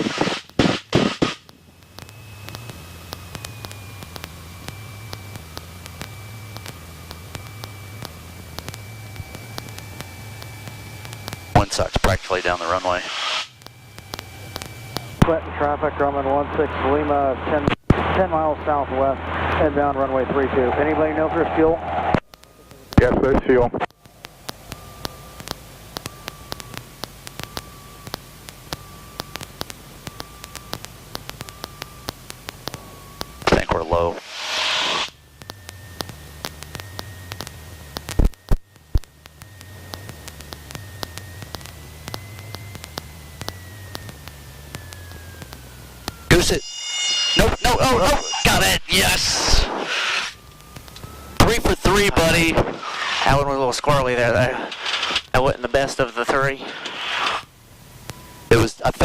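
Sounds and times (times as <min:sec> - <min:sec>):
static clicks: 0:00.0 - 0:15.3, 0:21.9 - 0:59.0
thin high whine: 0:00.0 - 0:59.0
intercom line hiss: 0:11.6 - 0:13.6, 0:32.8 - 0:35.2, 0:46.3 - 0:57.5
faint high tone: 0:46.3 - 0:49.7.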